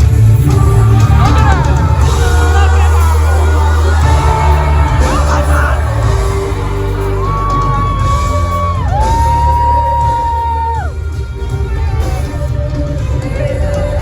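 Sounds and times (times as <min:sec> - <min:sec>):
live pop music with bass beat: 0:00.0 - 0:14.0
singer holding long notes: 0:00.0 - 0:14.0
crowd whooping: 0:00.4 - 0:12.7.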